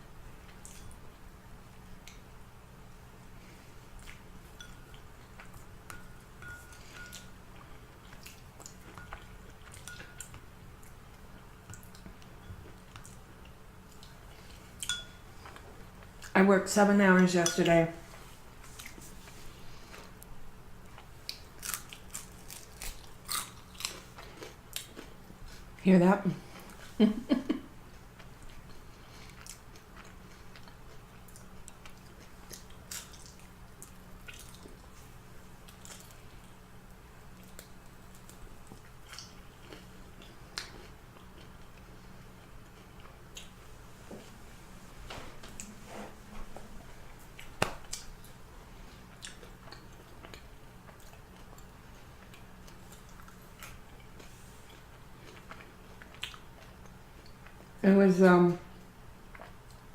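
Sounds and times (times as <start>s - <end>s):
steady low hum: 0.0s - 59.9s
chewing crispy fried chicken: 20.8s - 25.8s, 26.4s - 43.7s, 47.0s - 57.8s, 58.7s - 59.9s.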